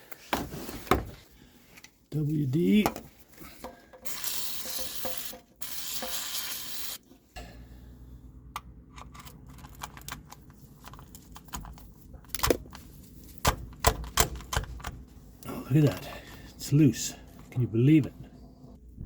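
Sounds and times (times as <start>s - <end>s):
aerosol can spraying: 4.1s - 7.0s.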